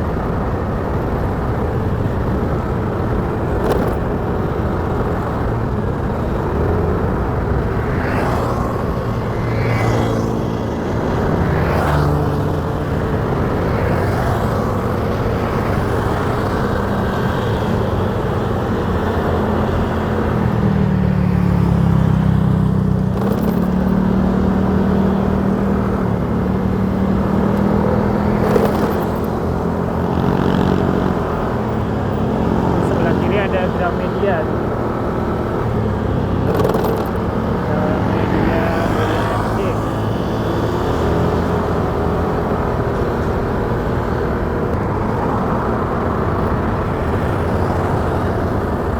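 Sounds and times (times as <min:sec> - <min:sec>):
wind and road noise: 0:00.0 - 0:48.9
motorcycle engine running: 0:21.0 - 0:48.9.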